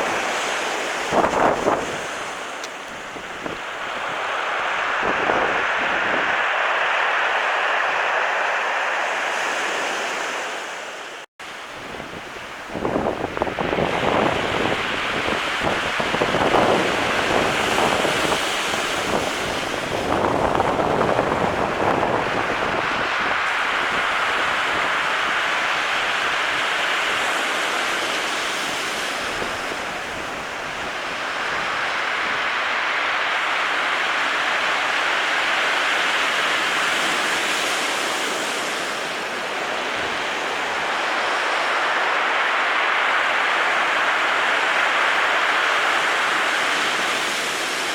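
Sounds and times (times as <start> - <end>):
wind buffeting microphone: 0.0 - 10.4, 11.7 - 34.9
sea surf breaking on shore: 0.0 - 47.9.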